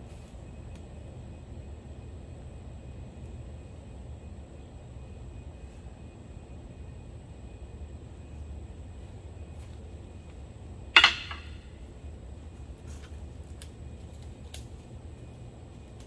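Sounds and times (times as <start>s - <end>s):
sharp ringing knock: 11.0s - 11.7s.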